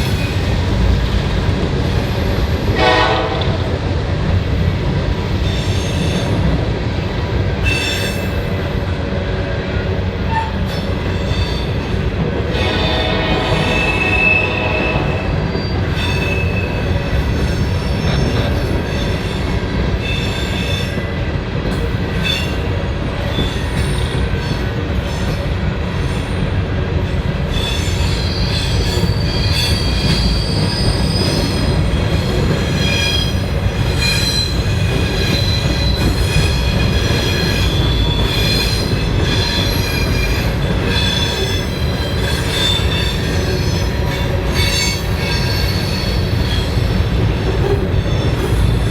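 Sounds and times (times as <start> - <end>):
train wheels rumbling on rail: 0.0 - 48.9
train wheels squealing: 5.4 - 6.4, 7.6 - 8.5, 10.3 - 12.0, 13.5 - 21.0, 22.2 - 25.4, 27.5 - 48.9.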